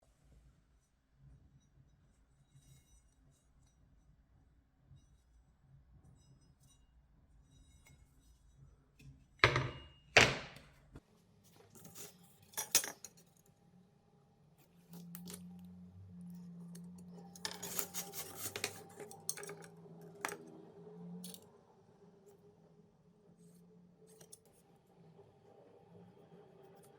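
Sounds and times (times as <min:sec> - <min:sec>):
metal parts clanking: 0:17.3 - 0:20.4.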